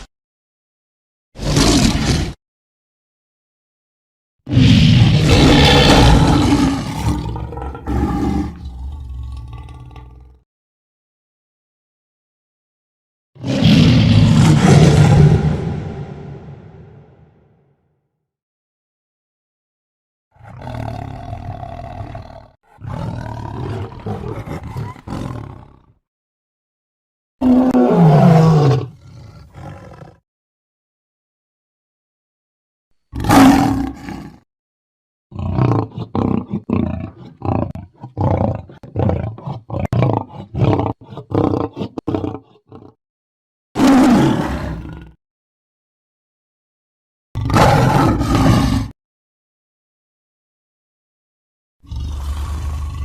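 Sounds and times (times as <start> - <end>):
tiger growling roars: 1.4 - 2.4, 4.5 - 10.4, 13.4 - 17.2, 20.4 - 25.9, 27.4 - 30.2, 33.2 - 34.4, 35.4 - 43.0, 43.8 - 45.2, 47.4 - 49.0, 51.8 - 53.0.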